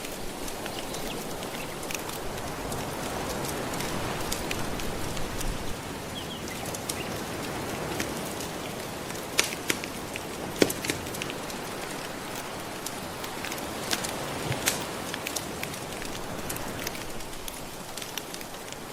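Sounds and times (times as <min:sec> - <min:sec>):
gentle ocean waves: 0:00.0 - 0:18.9
wood fire crackling: 0:00.0 - 0:18.9
sharp fire pops: 0:09.1 - 0:18.8.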